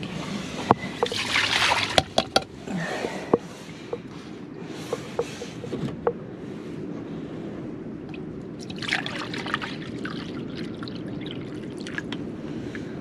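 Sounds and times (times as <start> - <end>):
water splashing and trickling: 0.0 - 3.5, 8.6 - 12.3.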